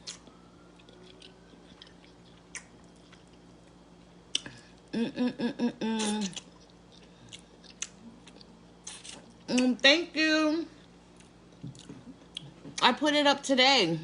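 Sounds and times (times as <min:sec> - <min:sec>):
wet chewing clicks and smacks: 0:00.0 - 0:04.6, 0:06.0 - 0:09.4
woman humming: 0:04.9 - 0:06.4.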